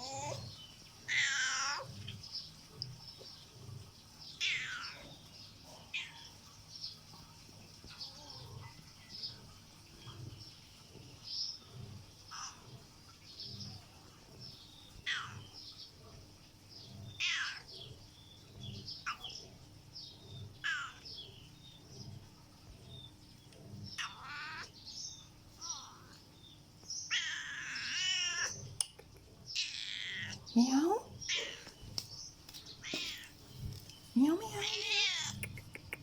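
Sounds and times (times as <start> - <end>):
cat meowing: 1.1 - 1.9, 4.4 - 5.1, 15.0 - 15.4, 17.2 - 17.7, 20.6 - 21.0, 24.0 - 24.7, 27.1 - 28.6, 29.6 - 30.4, 34.5 - 35.5.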